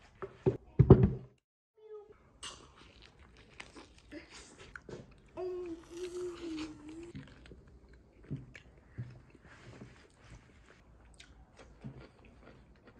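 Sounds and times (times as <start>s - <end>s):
person humming mmm: 5.4s - 7.2s.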